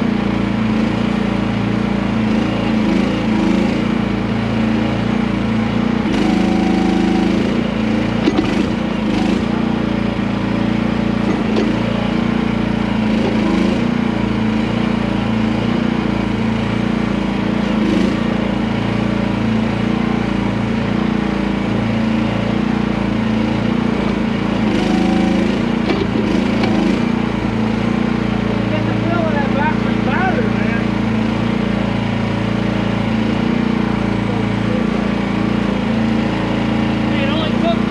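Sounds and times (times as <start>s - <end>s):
excavator engine running: 0.0s - 37.9s.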